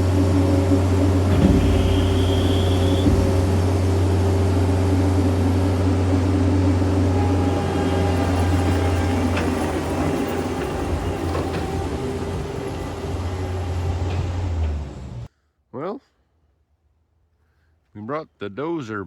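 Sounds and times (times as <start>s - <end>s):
diesel engine humming: 0.0s - 15.3s
brief high whine: 1.3s - 4.0s.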